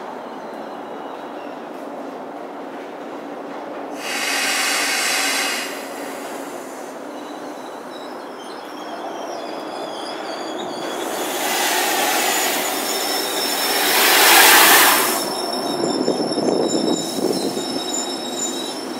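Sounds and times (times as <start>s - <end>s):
train rumbling: 0.1s - 18.9s
loud hiss: 4.0s - 7.0s, 10.9s - 15.8s
wheel squeals: 4.0s - 18.9s.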